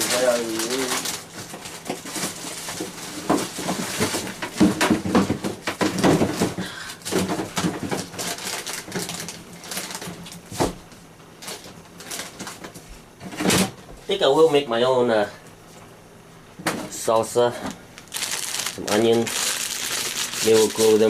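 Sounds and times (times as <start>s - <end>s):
kitchen knocks clicks and rustles: 1.4s - 10.8s.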